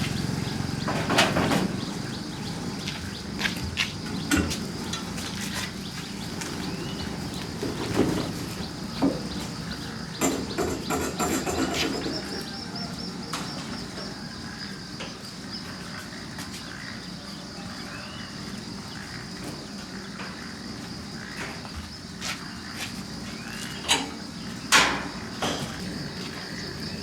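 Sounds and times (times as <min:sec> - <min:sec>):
high insect drone: 0:00.0 - 0:27.0
bird chirps: 0:25.7 - 0:27.0.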